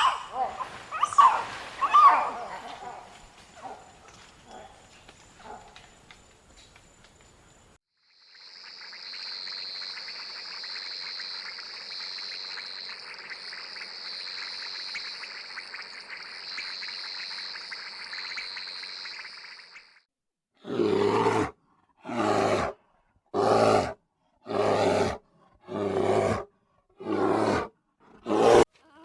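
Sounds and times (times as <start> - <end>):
insects trilling: 0.0 - 19.8
faint insect chirps: 0.0 - 20.0.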